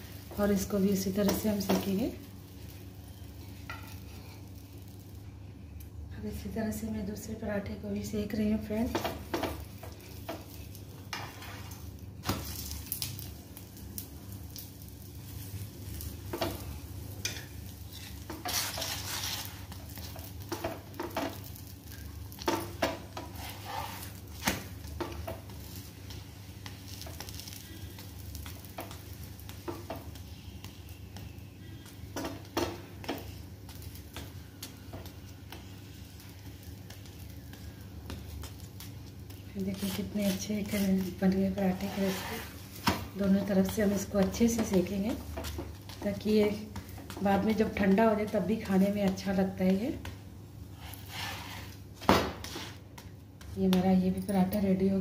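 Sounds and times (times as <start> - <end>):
flatbread sizzling in oil: 0.0 - 55.0
wooden spatula scraping pan: 10.3 - 11.9, 17.2 - 19.8, 22.4 - 24.4, 39.7 - 43.1, 50.7 - 51.8, 52.4 - 52.8.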